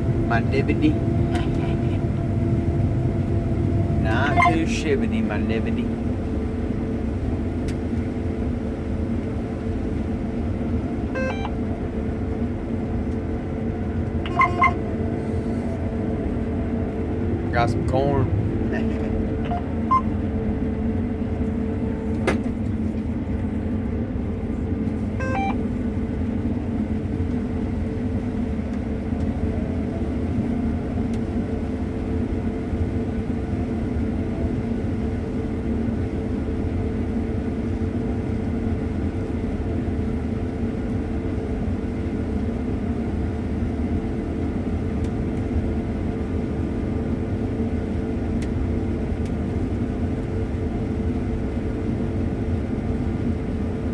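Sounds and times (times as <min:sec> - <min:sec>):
combine harvester drone: 0:00.0 - 0:53.9
short faint tones: 0:11.2 - 0:11.6, 0:14.3 - 0:14.8, 0:25.2 - 0:25.6.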